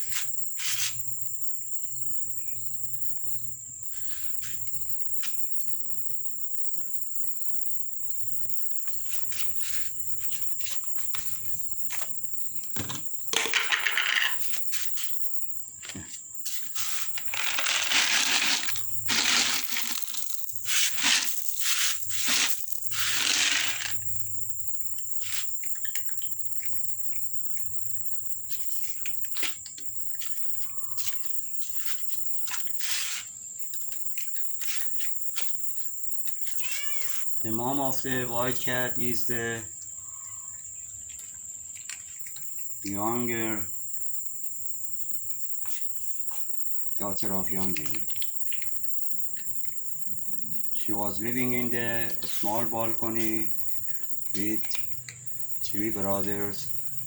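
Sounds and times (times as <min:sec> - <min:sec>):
crickets chirring: 0:00.0 - 0:57.0
loud rustling and crunching: 0:15.9 - 0:24.0.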